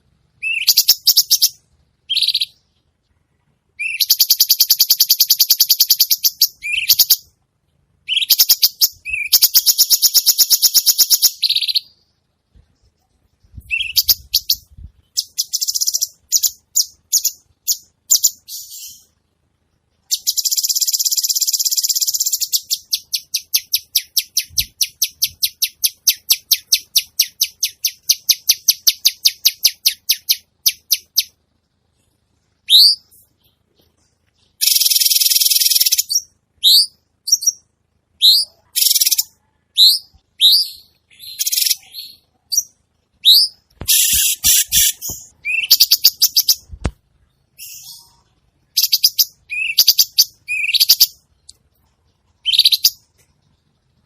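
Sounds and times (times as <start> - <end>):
bird sharp chips: 43.4 - 46.9.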